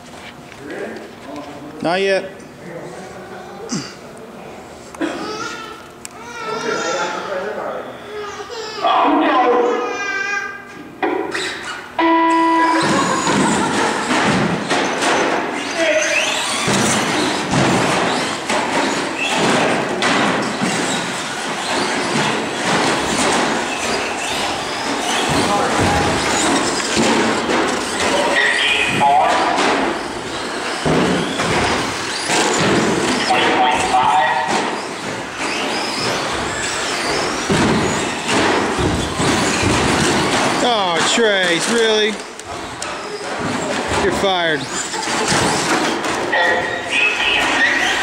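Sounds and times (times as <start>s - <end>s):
knocks and thuds: 12.8s - 15.5s, 16.5s - 33.7s, 34.4s - 41.3s, 44.8s - 46.3s
toy truck motors whining: 15.6s - 19.3s, 30.0s - 38.3s.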